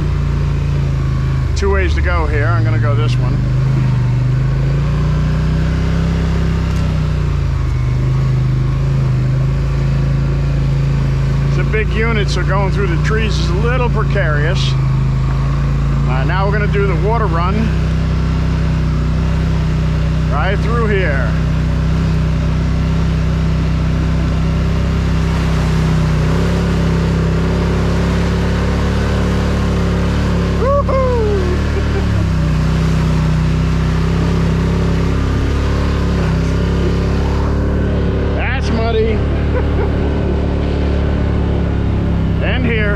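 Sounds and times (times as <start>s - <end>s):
atv engine running: 0.0s - 42.9s.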